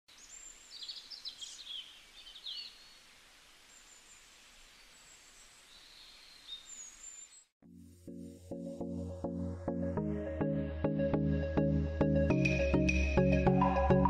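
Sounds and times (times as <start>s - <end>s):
soft steady hiss: 0.1s - 7.4s.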